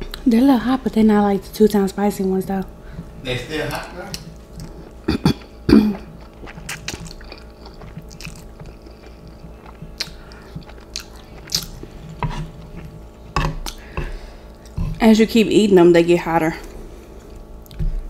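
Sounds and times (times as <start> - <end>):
person chewing noodles: 4.1 - 15.0
wet mouth clicks: 6.5 - 11.8.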